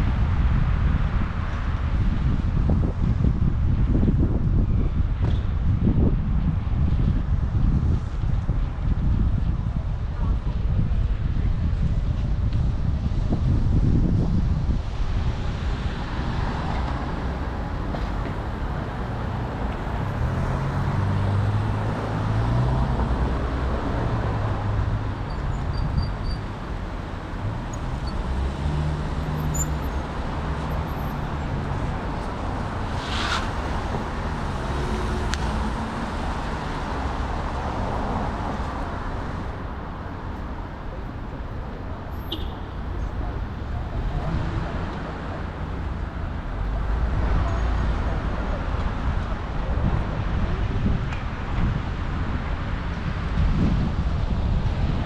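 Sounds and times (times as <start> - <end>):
road noise rushing: 0.0 - 55.0
passing car engines: 13.1 - 55.0.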